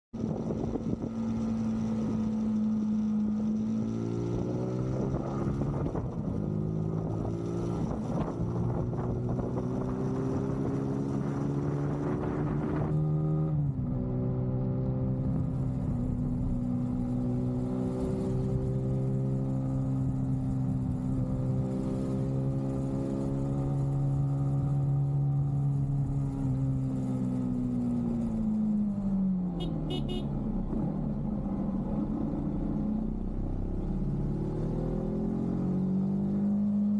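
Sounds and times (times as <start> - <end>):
wind rushing over microphone: 0.2 - 1.4, 5.0 - 13.0
motorcycle engine accelerating: 0.2 - 36.9.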